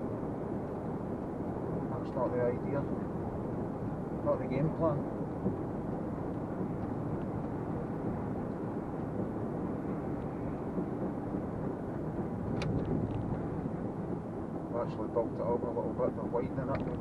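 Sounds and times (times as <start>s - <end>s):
lorry engine and road noise: 0.0s - 17.0s.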